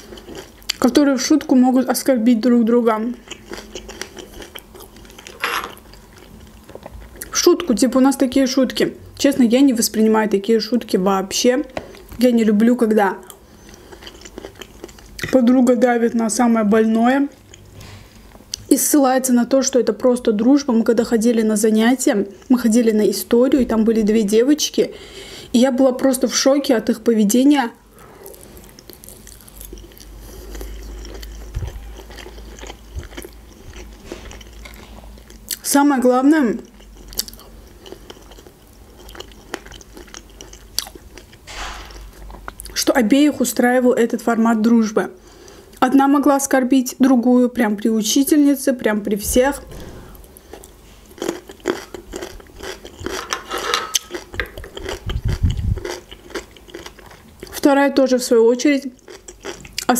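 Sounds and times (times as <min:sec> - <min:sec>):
woman chewing food: 0:00.0 - 0:00.8, 0:03.2 - 0:07.4, 0:13.2 - 0:15.3, 0:27.9 - 0:35.6, 0:36.6 - 0:42.8, 0:49.7 - 0:57.6, 0:59.0 - 0:59.9.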